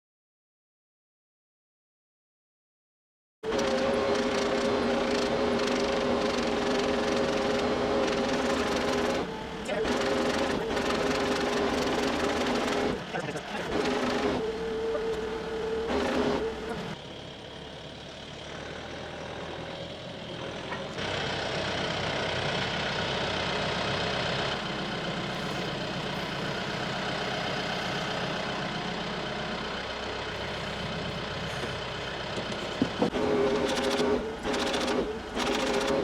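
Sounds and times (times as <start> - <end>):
tractor engine running: 3.4 - 36.0.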